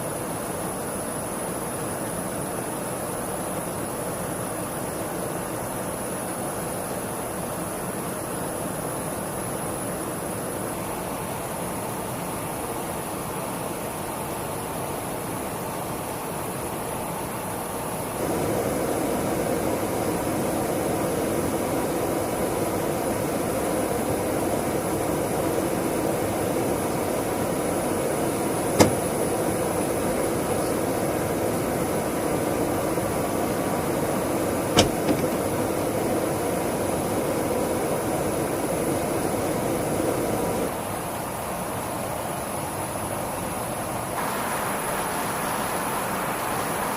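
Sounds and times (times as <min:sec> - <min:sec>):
jet engine running: 0:17.7 - 0:40.8.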